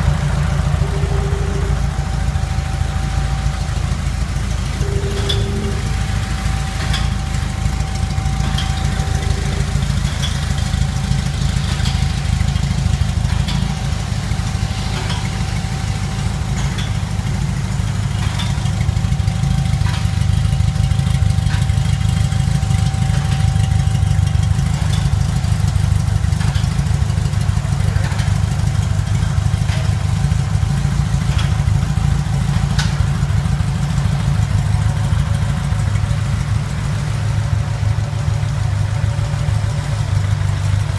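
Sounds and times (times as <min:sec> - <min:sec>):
car engine idling: 0:00.0 - 0:40.9
faint steady whine: 0:00.0 - 0:40.9.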